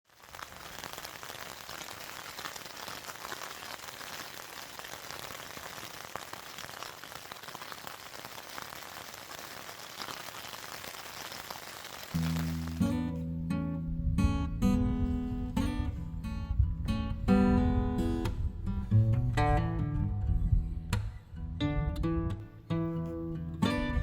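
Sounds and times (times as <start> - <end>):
steady rain falling: 0.0 - 13.1.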